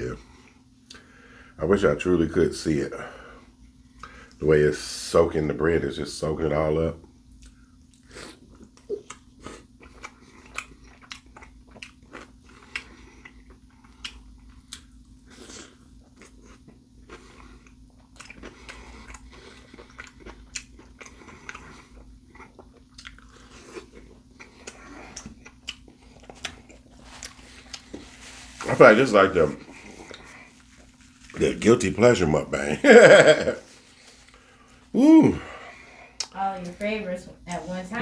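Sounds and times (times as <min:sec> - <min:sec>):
person chewing and biting: 0:07.3 - 0:28.7, 0:29.6 - 0:31.4
mouth clicks and smacks: 0:36.2 - 0:36.4.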